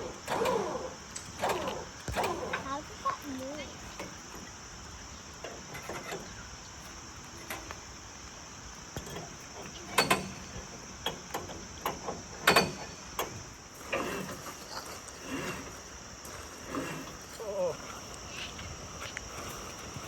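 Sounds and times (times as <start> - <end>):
insects chirring: 0.0 - 20.0
knocks and clanks: 9.0 - 14.5.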